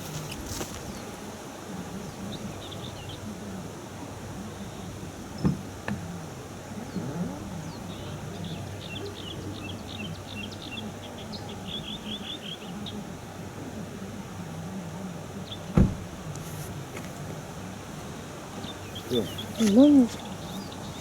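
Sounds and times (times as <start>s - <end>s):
small birds chirping: 0.0s - 13.3s, 17.6s - 21.0s.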